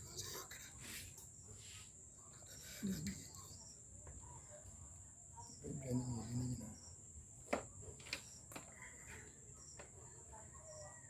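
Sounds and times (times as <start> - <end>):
crickets chirring: 5.3 - 7.4.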